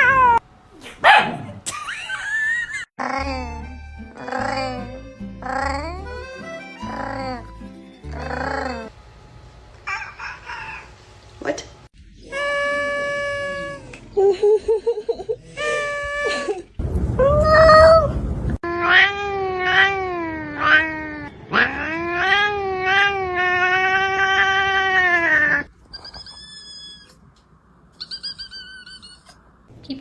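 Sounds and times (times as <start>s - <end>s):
cats yowling and meowing: 12.2s - 14.0s, 18.6s - 27.2s.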